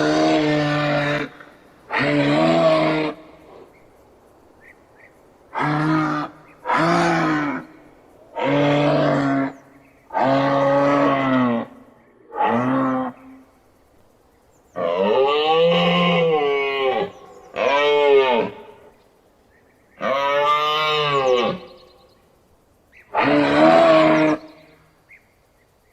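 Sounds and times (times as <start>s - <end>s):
moose bellowing: 0.0s - 3.8s, 5.4s - 13.6s, 14.8s - 19.0s, 23.0s - 24.8s.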